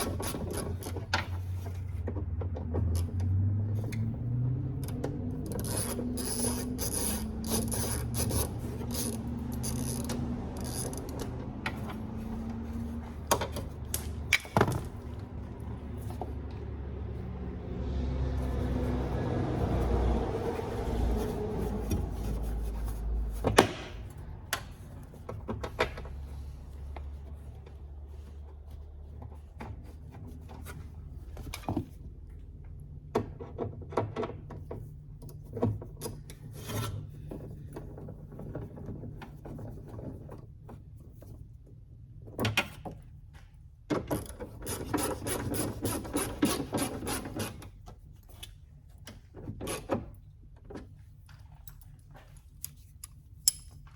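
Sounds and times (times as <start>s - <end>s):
scraping and rubbing on car door: 0.0s - 2.2s, 5.0s - 32.3s, 44.1s - 51.2s.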